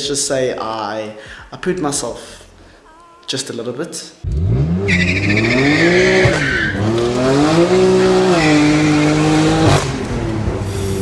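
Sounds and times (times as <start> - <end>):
car engine accelerating hard: 4.2 - 11.0
tyres squealing: 4.5 - 9.5.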